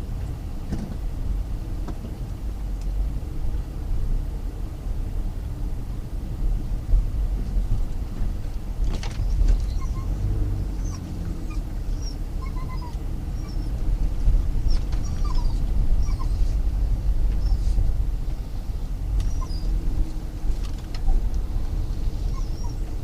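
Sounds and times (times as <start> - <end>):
car road rumble: 0.0 - 23.0
dog whining: 9.2 - 13.9, 14.6 - 16.6, 19.2 - 20.0, 21.1 - 23.0.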